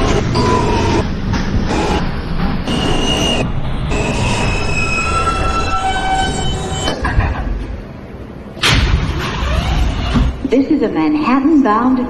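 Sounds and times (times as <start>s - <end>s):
train wheels squealing: 4.0s - 6.9s.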